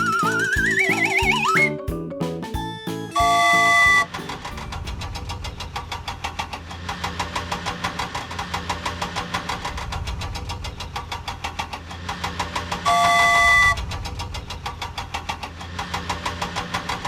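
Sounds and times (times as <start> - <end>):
cartoon engine chugging: 0.0 - 17.0.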